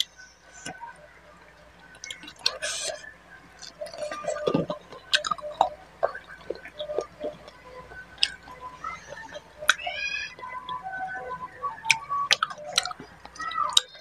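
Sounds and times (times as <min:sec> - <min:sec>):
mouth smacks and clicks: 0:01.9 - 0:10.4
person chewing food: 0:02.0 - 0:03.0, 0:03.6 - 0:07.6.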